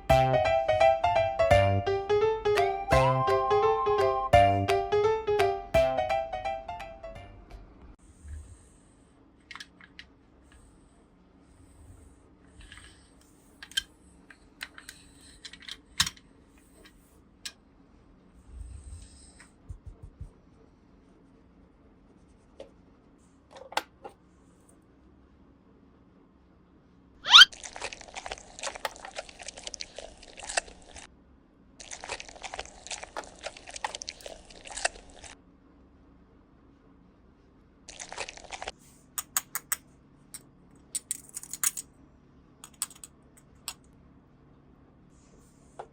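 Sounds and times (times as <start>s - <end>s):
plastic packaging crinkling: 31.8s - 35.4s, 37.9s - 38.7s
plastic toy pieces clicking: 40.9s - 41.9s, 42.6s - 43.1s.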